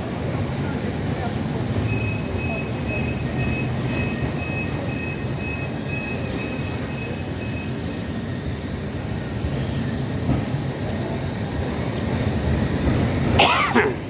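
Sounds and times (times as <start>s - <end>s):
tram rumbling: 0.0s - 14.0s.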